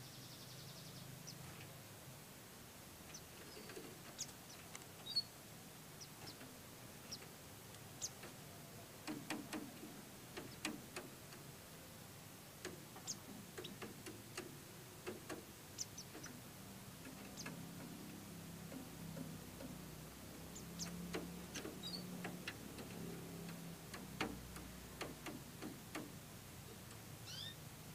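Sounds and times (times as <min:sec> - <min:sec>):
birds cheeping: 0:03.1 - 0:05.3, 0:07.9 - 0:08.9, 0:13.0 - 0:13.9, 0:15.7 - 0:23.6, 0:27.2 - 0:27.7
faint ticks and clicks: 0:09.0 - 0:11.5, 0:12.6 - 0:16.4, 0:17.0 - 0:27.1.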